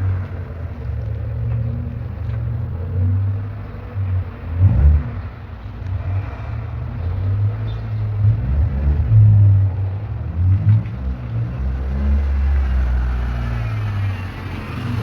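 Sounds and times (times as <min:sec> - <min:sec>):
car engine rumble: 0:00.0 - 0:15.0.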